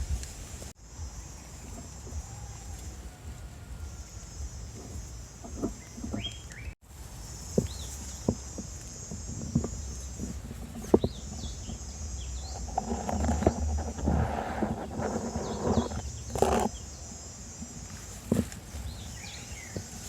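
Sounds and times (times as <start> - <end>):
high insect-like drone: 0.8 - 6.1
birds chirping: 0.9 - 20.0.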